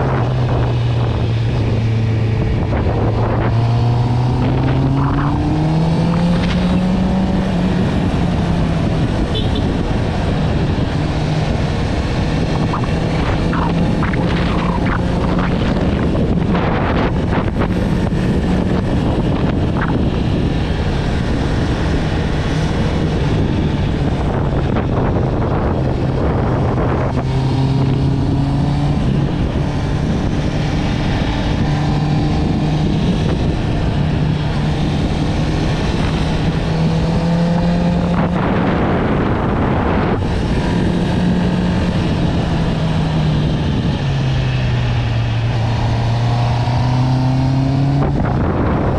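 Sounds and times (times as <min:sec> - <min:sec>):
motorcycle engine on the road: 0:00.0 - 0:48.9
wind rushing over microphone: 0:00.0 - 0:48.9.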